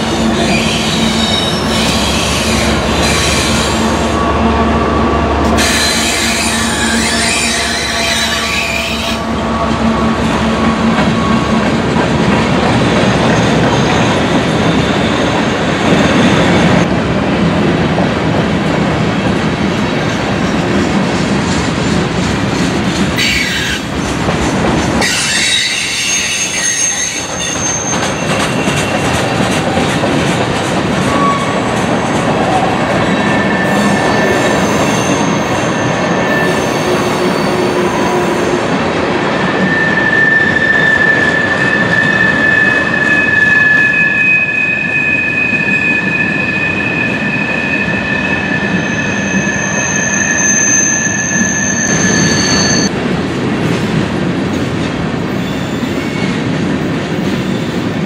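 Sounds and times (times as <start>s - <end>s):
railroad cars rumbling past: 0.0s - 58.0s
high-pitched wheel squeal: 5.6s - 10.4s, 39.6s - 52.9s.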